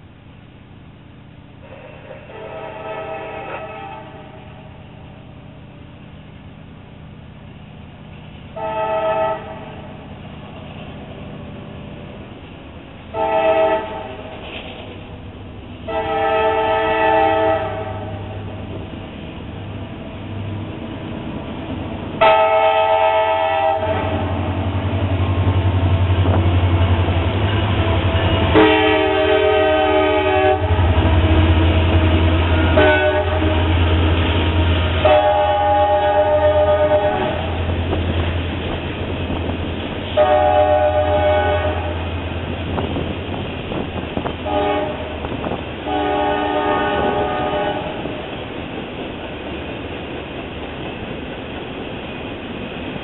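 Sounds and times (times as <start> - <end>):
diesel engines droning: 0.0 - 53.0
train cars rolling on rails: 0.0 - 53.0
locomotive horn blasts: 2.2 - 4.5, 8.6 - 9.9, 13.1 - 14.4, 15.8 - 18.5, 22.2 - 24.4, 28.2 - 33.9, 35.0 - 37.7, 40.1 - 42.2, 44.4 - 45.1, 45.8 - 48.1.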